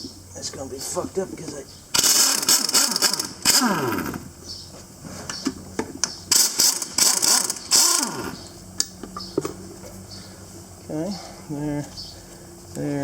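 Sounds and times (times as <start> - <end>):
impact wrench bursts: 1.9 - 4.4, 6.0 - 8.6.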